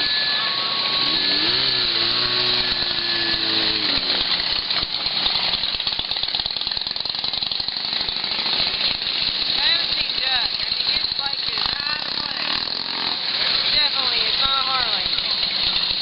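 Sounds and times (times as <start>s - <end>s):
held tone: 0.0s - 5.0s
motorcycle engines rattling: 0.0s - 16.0s.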